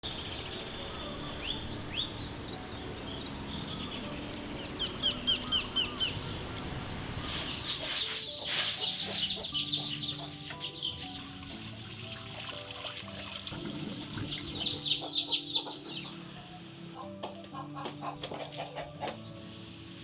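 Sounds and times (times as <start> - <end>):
high insect drone: 0.0 - 7.8
birds chirping: 0.0 - 11.6, 13.7 - 17.1.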